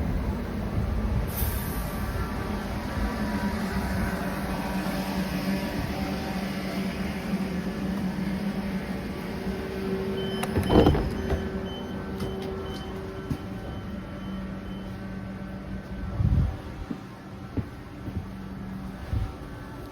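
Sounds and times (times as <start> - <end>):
train electric hum: 0.0 - 19.9.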